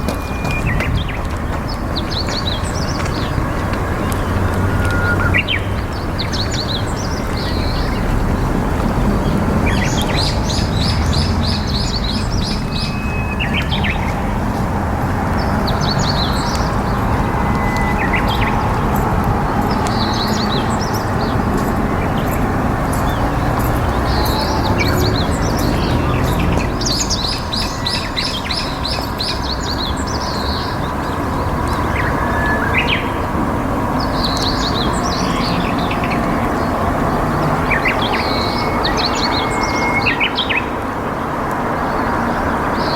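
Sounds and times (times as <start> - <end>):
small birds chirping: 0.0 - 42.9
river water flowing: 1.0 - 42.9.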